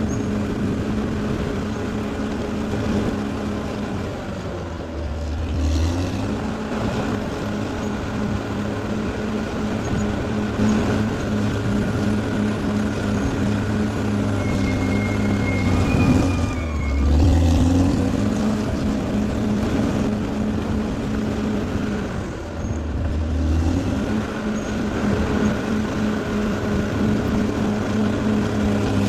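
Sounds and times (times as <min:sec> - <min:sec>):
bulldozer engine running: 0:00.0 - 0:29.0
faint high whine: 0:13.0 - 0:17.6.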